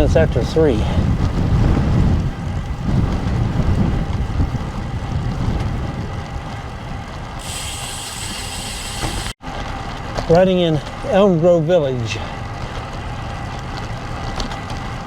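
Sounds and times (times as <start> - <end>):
wind buffeting microphone: 0.0 - 10.7
high hiss: 7.4 - 9.4.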